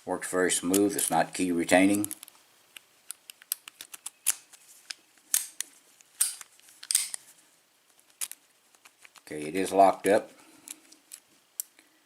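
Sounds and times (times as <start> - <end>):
padlock metal clicks and snaps: 1.9 - 7.2, 10.7 - 11.8.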